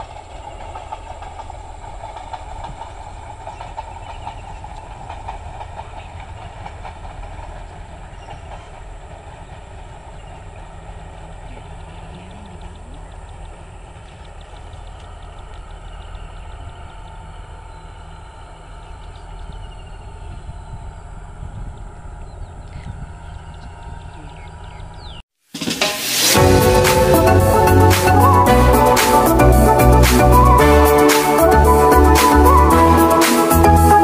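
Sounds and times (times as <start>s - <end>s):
train wheels rumbling on rails: 0.0s - 25.2s.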